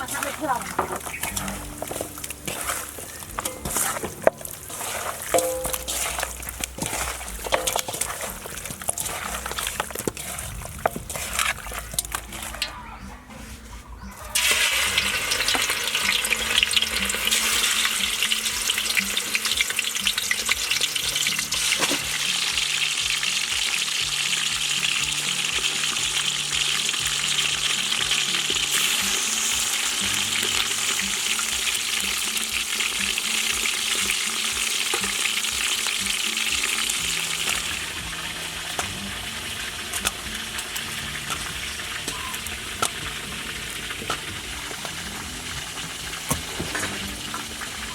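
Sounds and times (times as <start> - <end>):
food sizzling in hot oil: 0.0 - 12.8, 14.1 - 47.9
stirring clicks: 0.0 - 12.8, 30.4 - 47.8.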